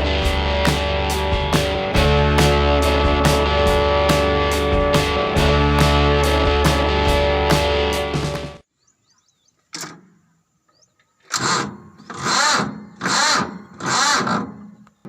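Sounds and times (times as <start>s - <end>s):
starter motor cranking engine: 11.3s - 14.6s.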